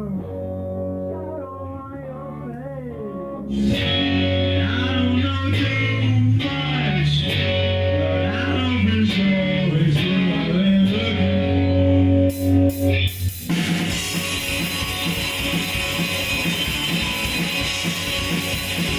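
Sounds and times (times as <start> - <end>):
bass guitar held notes: 0.0 - 18.9
electric guitar melody: 0.0 - 18.9.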